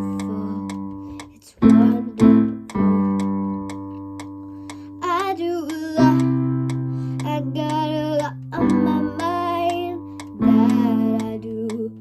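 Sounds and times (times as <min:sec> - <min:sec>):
person singing wordless phrase: 0:00.0 - 0:03.3, 0:05.0 - 0:06.3, 0:07.2 - 0:12.0.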